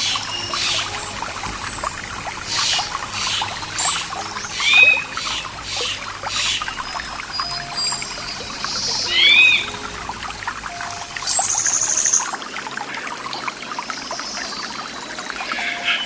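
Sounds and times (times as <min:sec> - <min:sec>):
bird high trill: 0:00.0 - 0:12.2
birds chirping: 0:00.0 - 0:12.4
stream water babbling: 0:00.0 - 0:16.0.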